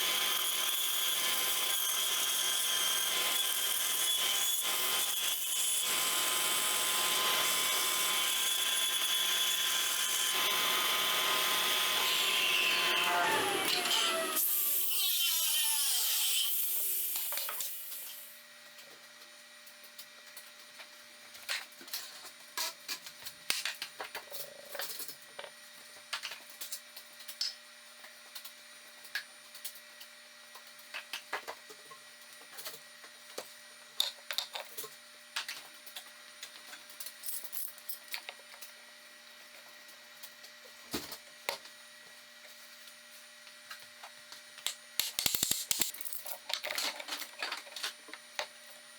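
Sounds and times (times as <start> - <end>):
power tool spinning down: 5.8 - 18.3.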